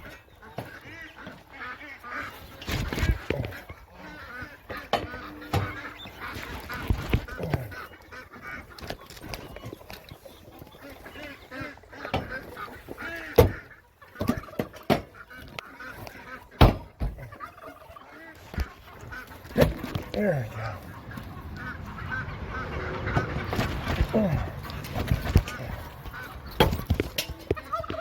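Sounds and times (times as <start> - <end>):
flock of birds calling: 0.0 - 28.0
sharp knocks: 16.6 - 17.2.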